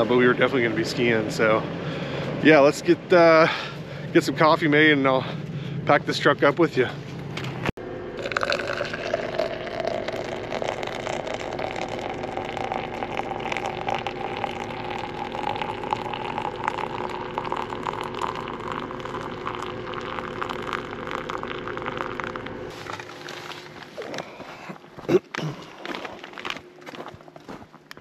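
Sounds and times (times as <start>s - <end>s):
water boiling and bubbling: 8.2s - 23.7s.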